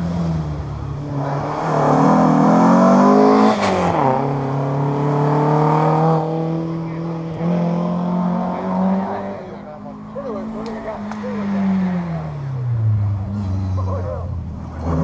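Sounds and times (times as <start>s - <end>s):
rally car accelerating past: 0.0s - 9.5s.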